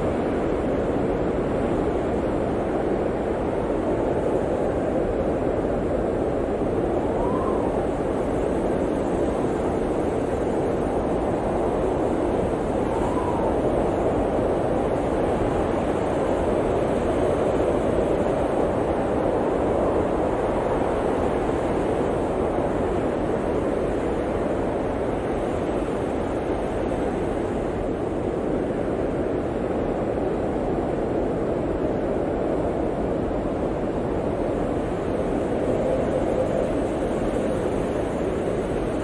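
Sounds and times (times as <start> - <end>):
blizzard wind blowing: 0.0 - 39.0.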